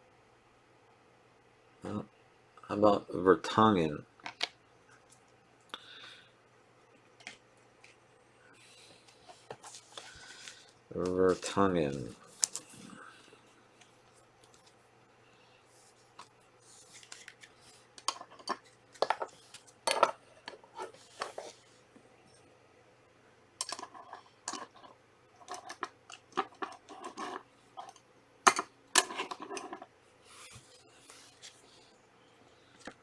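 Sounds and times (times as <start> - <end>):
cards clicking and rustling: 9.4 - 12.8, 16.2 - 21.6.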